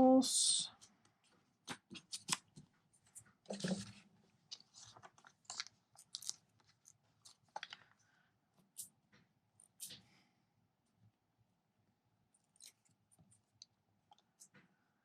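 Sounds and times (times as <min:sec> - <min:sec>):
paper rustling: 0:01.7 - 0:08.0.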